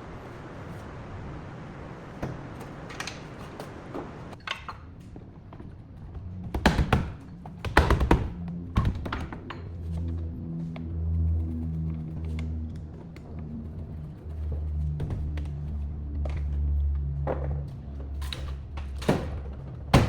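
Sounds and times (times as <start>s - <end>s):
steady hiss: 0.0s - 4.4s
sharp knocks and rattles: 2.2s - 10.4s, 11.0s - 20.0s.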